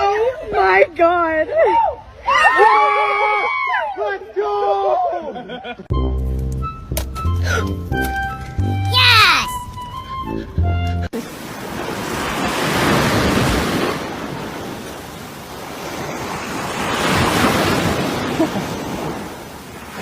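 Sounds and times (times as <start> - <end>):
ocean surf washing: 11.2 - 20.0.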